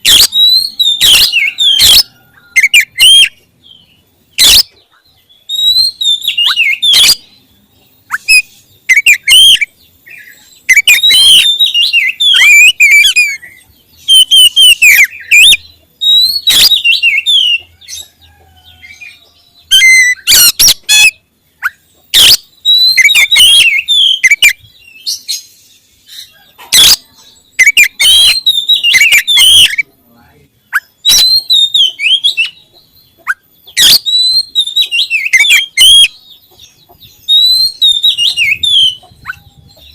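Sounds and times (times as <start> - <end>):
bird singing whistled phrases: 0.0 - 3.4, 4.4 - 4.8, 5.4 - 7.3, 8.1 - 17.6, 19.7 - 25.5, 26.8 - 29.9, 30.7 - 32.6, 33.3 - 36.4, 37.2 - 39.8.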